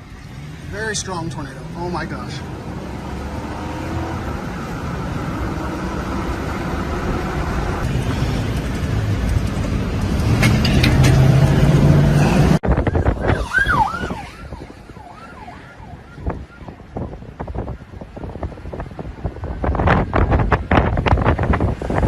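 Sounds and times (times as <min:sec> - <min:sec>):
strong wind roaring: 0:02.4 - 0:22.0
emergency vehicle siren: 0:12.2 - 0:18.6.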